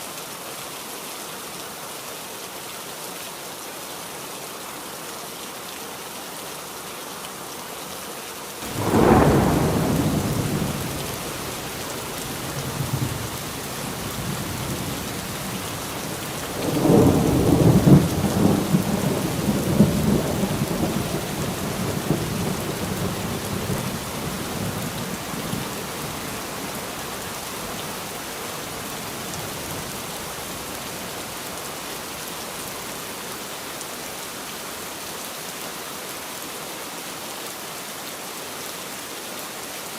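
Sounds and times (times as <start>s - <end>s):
heavy rain: 0.0s - 39.9s
thunder rumbling: 8.6s - 31.4s.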